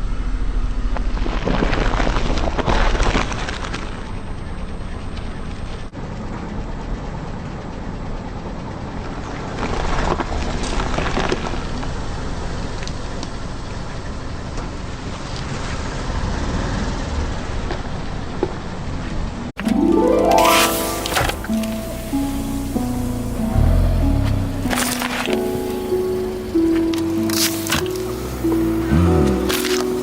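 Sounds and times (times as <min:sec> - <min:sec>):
car engine running slowly: 0:21.9 - 0:30.0.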